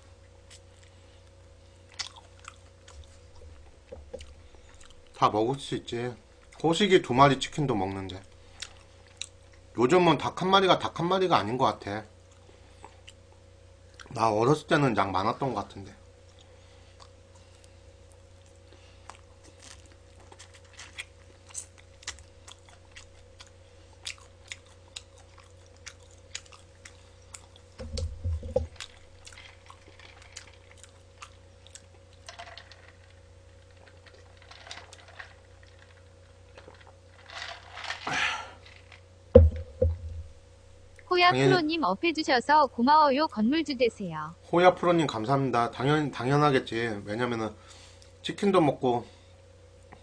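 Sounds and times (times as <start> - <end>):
steady low hum: 0.0 - 50.0
chewing crunchy fried chicken: 0.2 - 5.7, 8.0 - 9.7, 12.2 - 14.3, 16.1 - 27.8, 28.6 - 37.8
heavier knocks: 27.8 - 28.7, 39.4 - 40.4.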